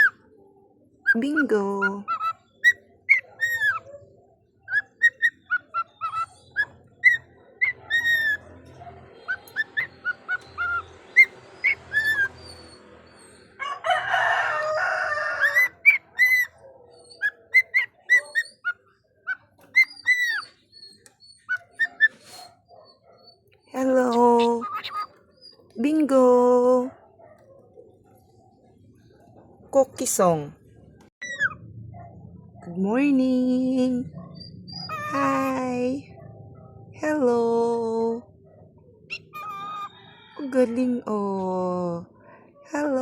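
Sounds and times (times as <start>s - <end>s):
cockatiels chirping and whistling: 2.1s - 3.8s, 4.7s - 8.4s, 9.3s - 13.1s, 15.4s - 16.5s, 17.2s - 22.5s, 24.1s - 25.2s, 31.2s - 31.6s, 34.4s - 35.5s, 39.1s - 40.0s.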